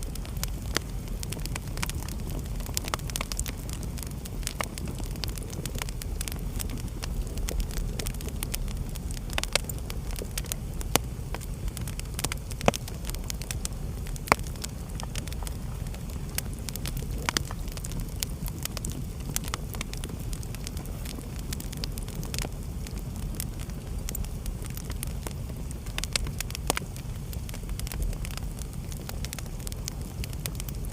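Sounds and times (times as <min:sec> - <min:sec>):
sharp pops of burning wood: 0:00.0 - 0:30.9
wood fire crackling: 0:00.0 - 0:30.9.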